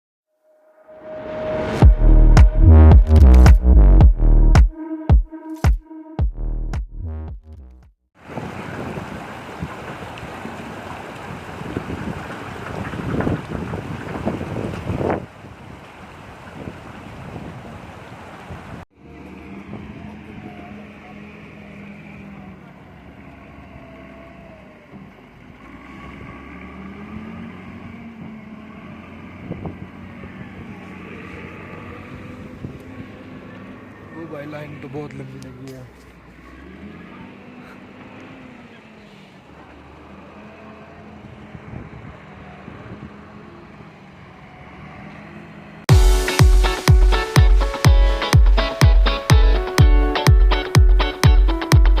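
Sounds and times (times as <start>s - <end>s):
vehicle engines humming: 0.9s - 4.6s, 8.2s - 52.0s
electronic dance music: 1.0s - 7.8s, 45.9s - 52.0s
heavy kick drum: 1.8s - 7.5s, 45.9s - 52.0s.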